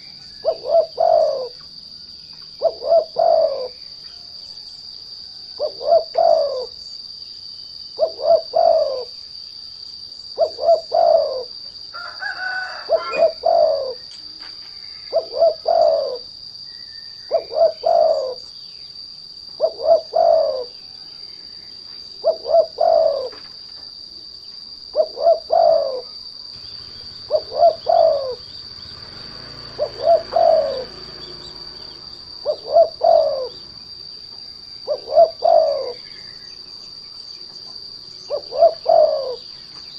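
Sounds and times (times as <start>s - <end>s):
dove cooing: 0.0s - 1.9s, 2.6s - 3.8s, 5.5s - 6.9s, 8.0s - 9.2s, 10.3s - 14.1s, 14.8s - 16.3s, 17.1s - 18.5s, 19.5s - 21.0s, 22.2s - 23.6s, 24.9s - 34.0s, 34.7s - 36.6s, 38.2s - 39.9s
high insect drone: 0.0s - 39.9s.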